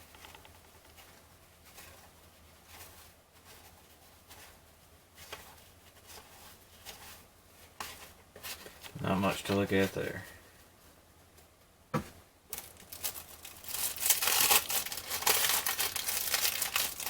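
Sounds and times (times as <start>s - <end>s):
cards rustling and flicking: 12.5s - 17.0s.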